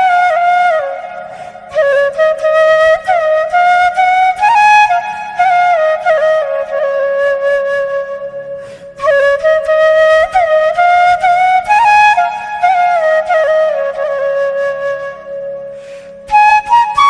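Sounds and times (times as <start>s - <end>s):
flute melody: 0.0s - 17.0s.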